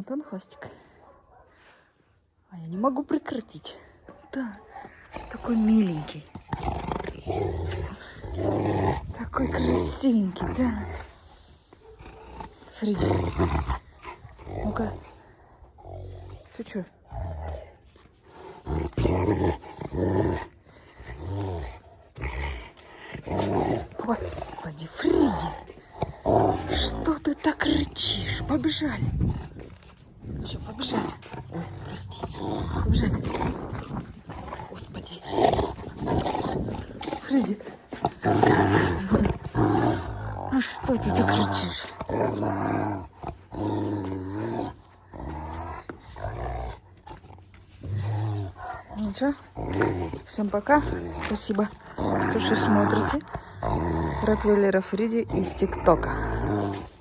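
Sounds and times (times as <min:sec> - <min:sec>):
dog growling: 0:03.2 - 0:57.0.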